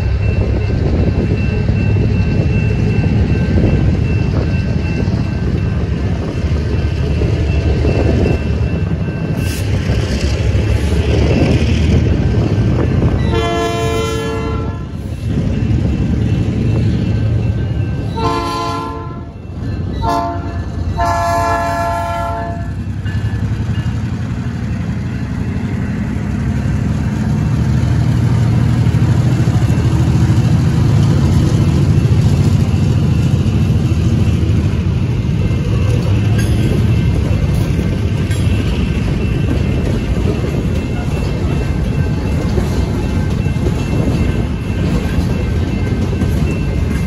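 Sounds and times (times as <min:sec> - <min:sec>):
diesel engines rumbling: 0:00.0 - 0:47.0
locomotive air horn blasts: 0:13.3 - 0:15.0, 0:18.2 - 0:19.3, 0:20.0 - 0:22.7.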